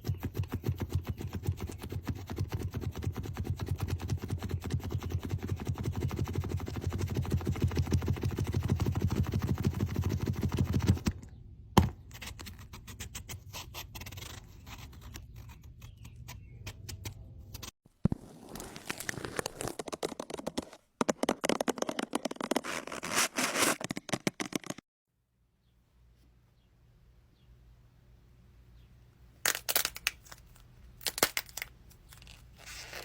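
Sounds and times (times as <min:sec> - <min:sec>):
scraping and scratching: 0:12.0 - 0:24.8.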